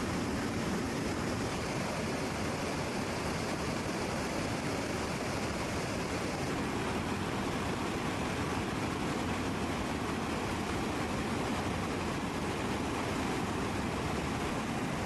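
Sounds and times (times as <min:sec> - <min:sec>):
aircraft engines rushing: 0:00.0 - 0:12.7.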